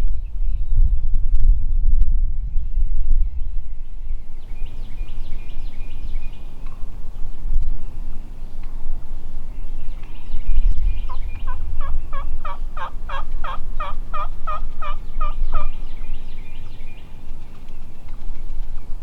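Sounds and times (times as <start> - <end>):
low rumble of wind: 0.0 - 19.0
turkey yelps: 11.8 - 15.7.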